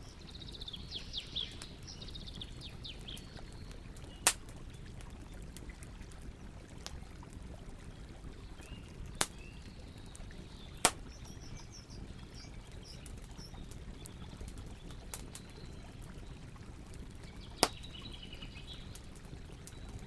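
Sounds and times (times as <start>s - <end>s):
birds chirping: 0.0s - 4.9s, 8.5s - 16.4s, 17.3s - 20.0s
burning wood popping: 0.0s - 7.2s, 8.9s - 20.0s
campfire crackling: 0.0s - 20.0s.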